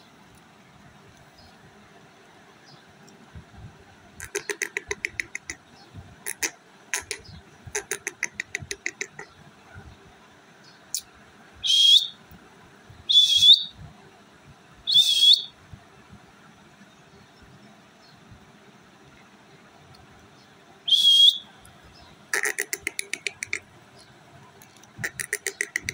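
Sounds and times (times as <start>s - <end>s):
parrot clicking chatter: 4.2s - 5.6s, 6.2s - 9.3s, 22.3s - 23.7s, 24.6s - 25.9s
parrot squawks: 13.1s - 13.7s, 22.3s - 23.6s, 25.0s - 25.9s.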